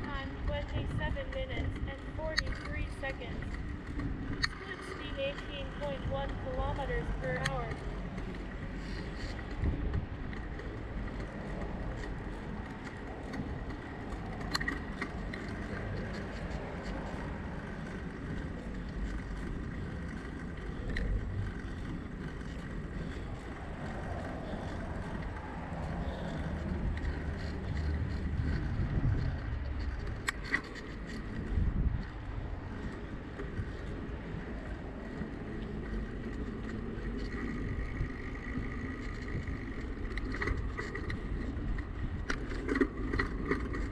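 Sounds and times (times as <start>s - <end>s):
bicycle road rumble: 0.0s - 43.9s
wind: 0.0s - 43.9s
sharp clicks and knocks: 9.0s - 23.1s, 23.9s - 32.2s.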